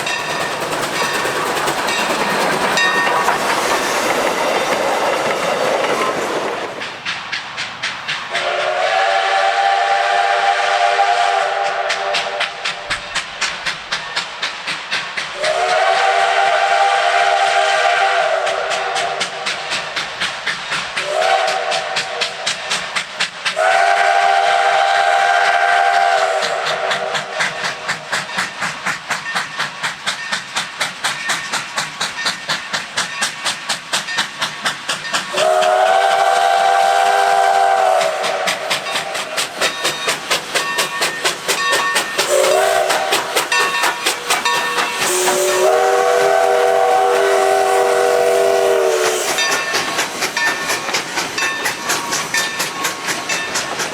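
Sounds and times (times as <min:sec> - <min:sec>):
steam locomotive exhaust chuffs: 0:00.0 - 0:53.9
steam whistle blowing: 0:08.3 - 0:13.2, 0:15.4 - 0:19.8, 0:21.0 - 0:28.1, 0:35.3 - 0:50.6.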